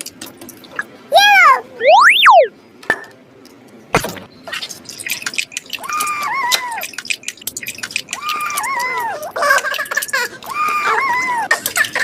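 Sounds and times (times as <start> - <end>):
cartoon pitch swoop: 1.8 - 2.5
short warbling tone: 1.8 - 2.5
dripping clicking sounds: 4.5 - 12.0.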